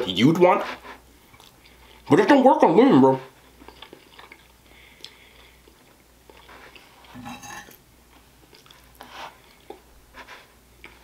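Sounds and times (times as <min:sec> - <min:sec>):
chewing food: 0:01.2 - 0:02.1, 0:03.3 - 0:07.2, 0:08.1 - 0:10.0, 0:10.7 - 0:11.0
metal spoon clinking on plate: 0:07.2 - 0:07.8.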